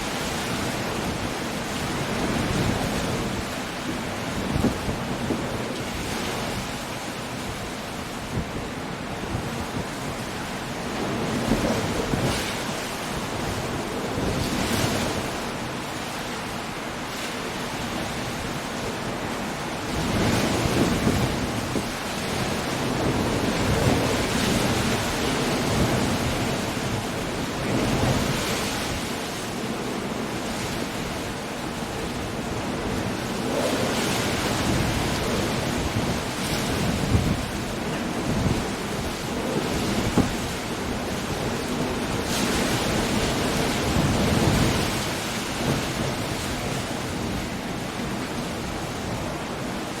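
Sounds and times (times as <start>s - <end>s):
rain: 0.0s - 50.0s
surf breaking against shore: 0.0s - 50.0s
wind rushing: 32.0s - 37.6s.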